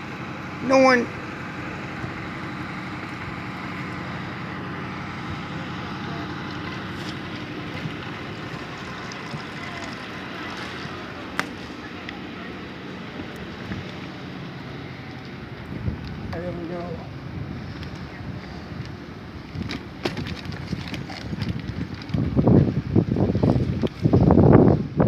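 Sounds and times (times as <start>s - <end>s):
low vehicle hum: 0.0s - 25.0s
wind rushing over microphone: 6.3s - 25.0s.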